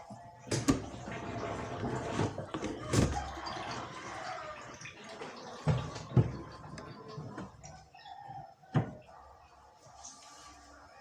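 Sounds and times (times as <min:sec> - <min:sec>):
water dripping and splashing: 0:00.4 - 0:07.9.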